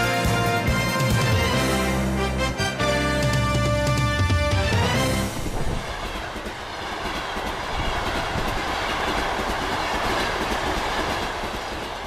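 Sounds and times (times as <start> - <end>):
train wheels on track: 4.0 - 12.0.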